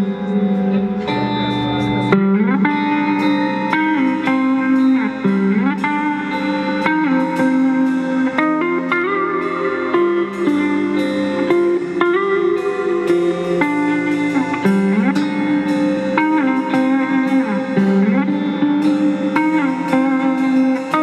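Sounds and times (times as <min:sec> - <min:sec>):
slide guitar playing: 0:00.0 - 0:21.0.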